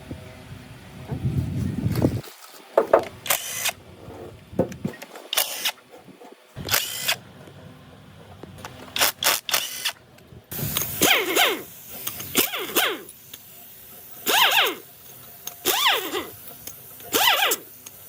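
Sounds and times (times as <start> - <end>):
short sharp tool bursts: 3.3 - 3.8, 9.0 - 13.4, 14.2 - 14.9, 15.6 - 16.4, 17.1 - 17.9.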